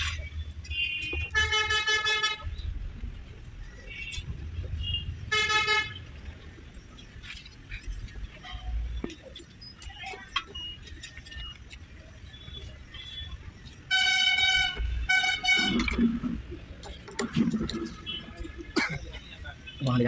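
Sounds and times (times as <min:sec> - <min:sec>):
vehicle horn honking: 0:00.7 - 0:02.4, 0:04.8 - 0:06.0, 0:13.9 - 0:16.0, 0:18.1 - 0:18.4.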